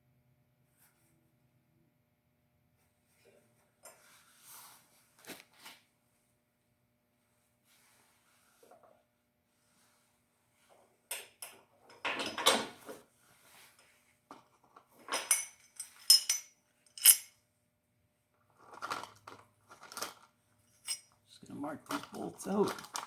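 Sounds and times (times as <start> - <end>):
metal parts and tools clinking: 15.0 - 17.4, 19.8 - 21.2.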